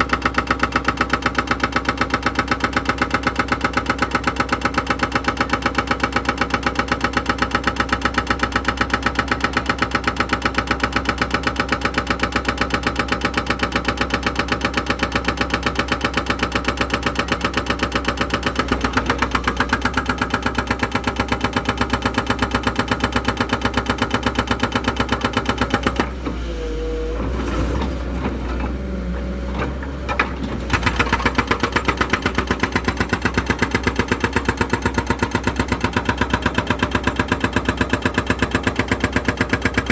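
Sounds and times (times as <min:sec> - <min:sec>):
engine running with rapid beat: 0:15.8 - 0:26.1, 0:30.6 - 0:39.9.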